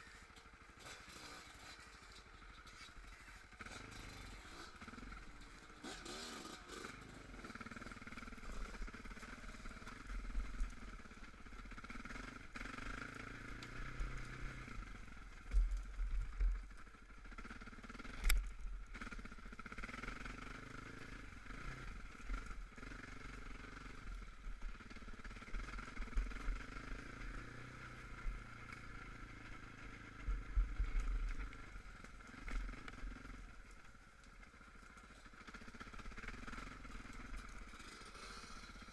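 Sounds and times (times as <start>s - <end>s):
quad engine under load: 0.0s - 38.9s.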